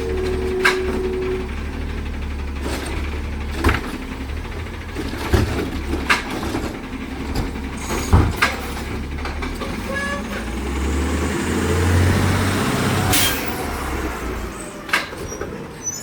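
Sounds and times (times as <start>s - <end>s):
steady tone: 0.0s - 2.4s
garbage truck engine rumble: 0.0s - 16.0s.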